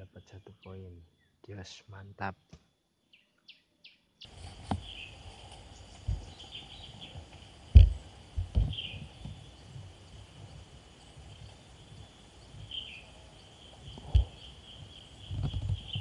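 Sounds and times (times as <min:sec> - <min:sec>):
high insect buzz: 0:04.3 - 0:16.0.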